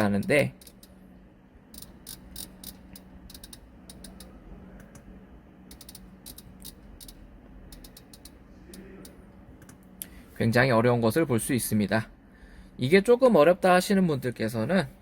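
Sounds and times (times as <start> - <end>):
rotary dial clicking: 1.7 - 4.4, 5.7 - 9.8.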